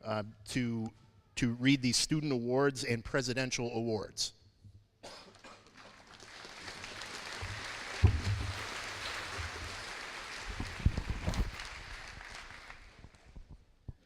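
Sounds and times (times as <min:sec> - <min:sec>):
audience applauding: 0:05.7 - 0:13.3
microphone handling thumps: 0:10.6 - 0:11.6.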